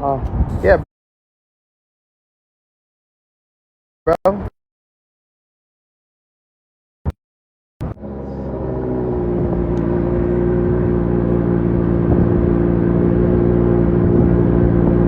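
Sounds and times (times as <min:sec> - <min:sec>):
car engine idling: 0:07.8 - 0:12.0.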